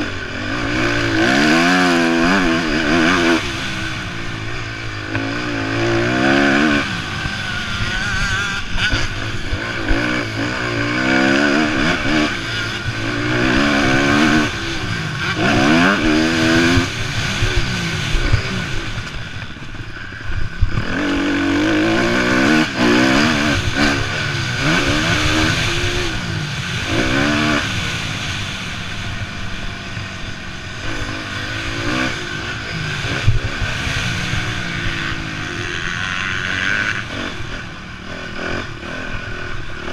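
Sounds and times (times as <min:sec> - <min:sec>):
motocross bikes revving: 0:00.0 - 0:39.9.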